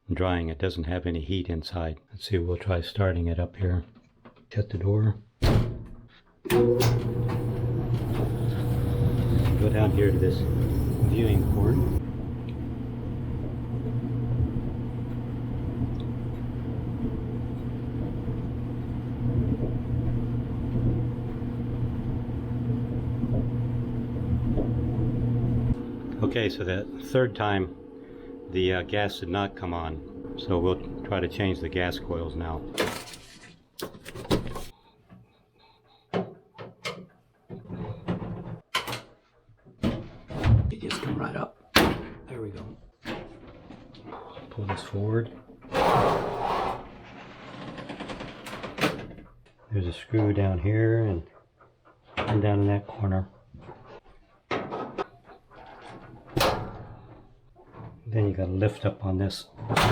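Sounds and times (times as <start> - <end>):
clothes dryer motor hum: 6.5 - 32.8
dryer drum turning: 6.5 - 33.0, 43.0 - 49.6, 53.6 - 58.0.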